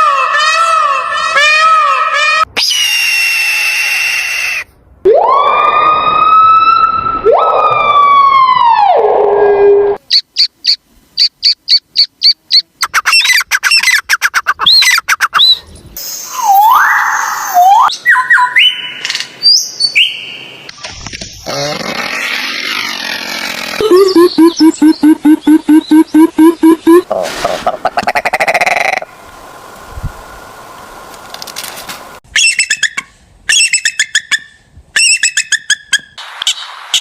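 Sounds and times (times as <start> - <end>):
warbling siren-like tone: 5.1 - 10.0
wavering whistle: 16.2 - 18.8.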